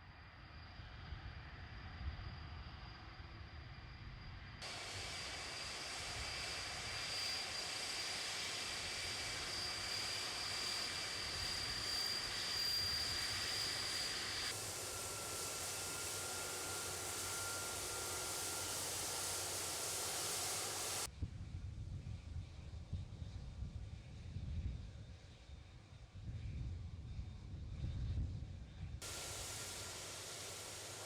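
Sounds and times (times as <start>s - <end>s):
high engine whine: 4.4s - 21.1s, 29.0s - 31.0s
jet engines running: 4.6s - 21.1s, 29.0s - 31.0s.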